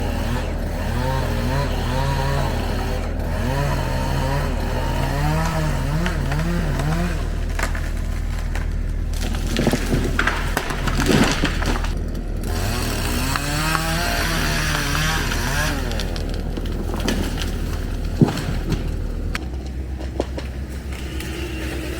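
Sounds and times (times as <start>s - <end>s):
chainsaw revving: 0.0s - 21.9s
wood cracking and tree crashing: 0.0s - 21.9s.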